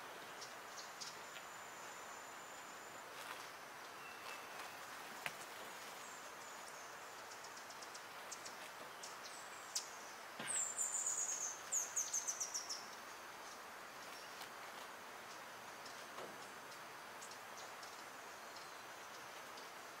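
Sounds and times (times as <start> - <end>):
small bird chirping: 0.3 - 14.4.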